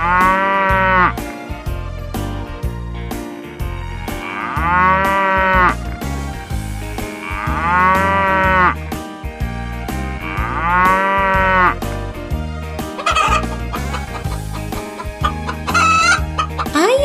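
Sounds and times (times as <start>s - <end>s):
cow mooing: 0.0s - 1.2s, 4.1s - 5.8s, 7.2s - 8.8s, 10.2s - 11.8s
light background music: 0.0s - 17.0s.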